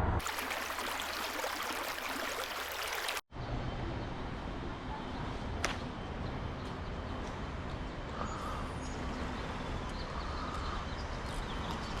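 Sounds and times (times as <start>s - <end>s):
stream water flowing: 0.0s - 3.2s.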